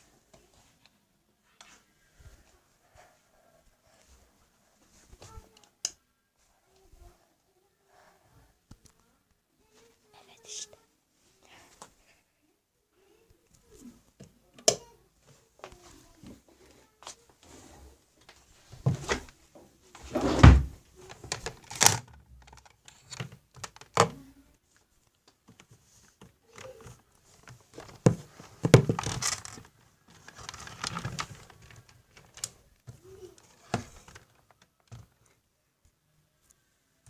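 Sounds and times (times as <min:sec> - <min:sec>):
rustling or scraping: 0:15.8 - 0:23.2, 0:25.6 - 0:34.6.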